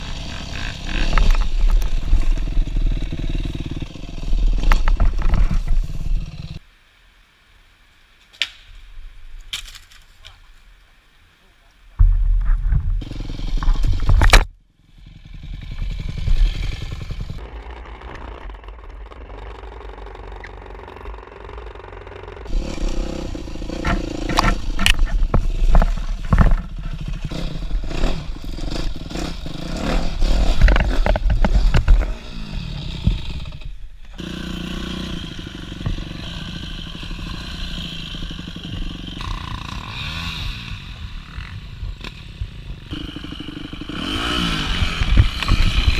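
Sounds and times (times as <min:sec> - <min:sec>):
dirt bike engine revving: 0:00.0 - 0:06.6, 0:13.0 - 0:14.2, 0:14.8 - 0:45.9.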